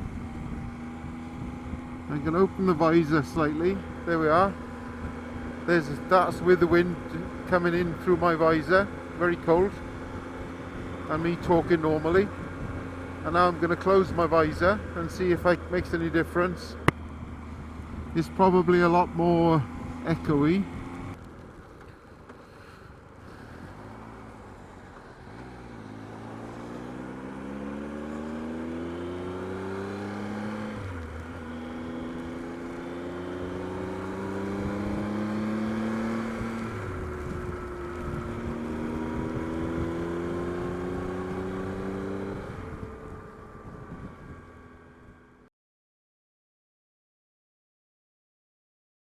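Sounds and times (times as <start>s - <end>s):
motorcycle engine accelerating: 0.0s - 45.5s.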